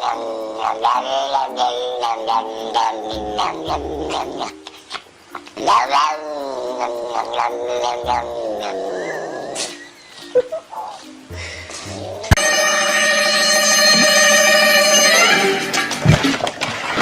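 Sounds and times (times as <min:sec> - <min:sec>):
pet animal yowling: 0:00.0 - 0:04.5, 0:05.6 - 0:09.8.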